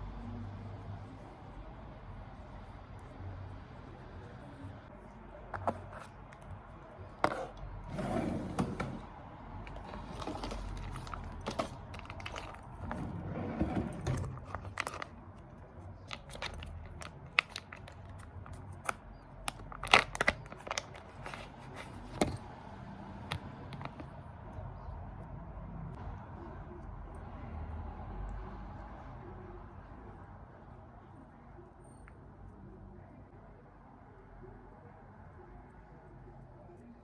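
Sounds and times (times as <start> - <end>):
soft rustling and scraping: 3.9 - 22.5.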